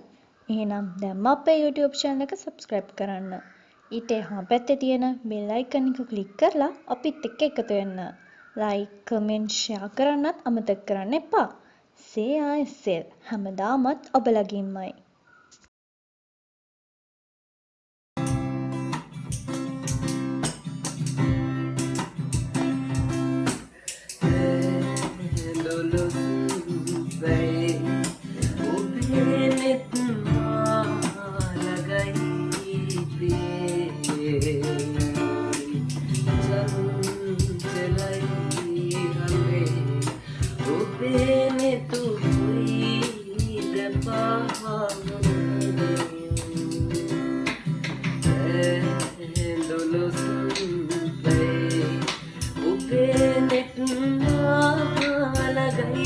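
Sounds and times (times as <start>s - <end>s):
acoustic guitar strumming: 18.2s - 56.0s
young man singing: 23.8s - 56.0s.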